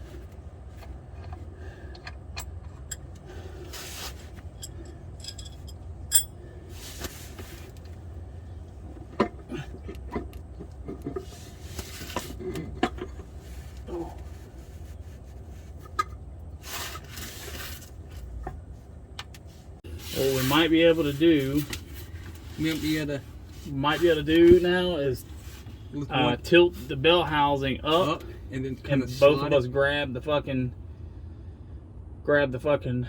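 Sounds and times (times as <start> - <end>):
steady low hum: 0.0 - 33.0
metallic clinks of tools and parts: 4.4 - 6.4.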